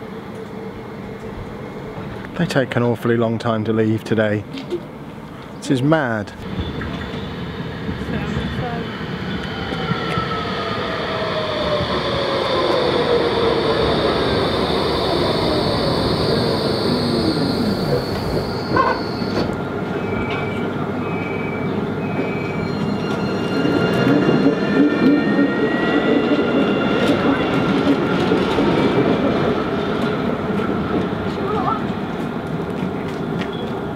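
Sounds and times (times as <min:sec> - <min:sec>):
tram electric drive whine: 0:00.0 - 0:05.6, 0:06.3 - 0:33.9
short beeps: 0:14.8 - 0:19.5.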